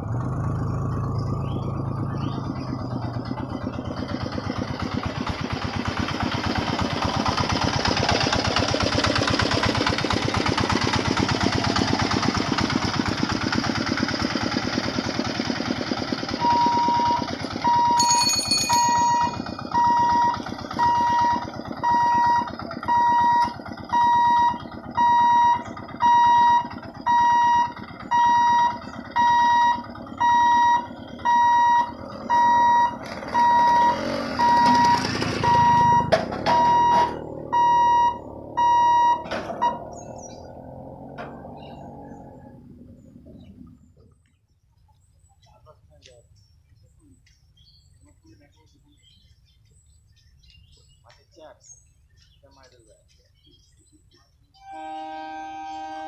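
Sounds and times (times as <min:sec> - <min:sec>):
electronic warning beeps: 0:16.4 - 0:18.2, 0:18.8 - 0:39.9.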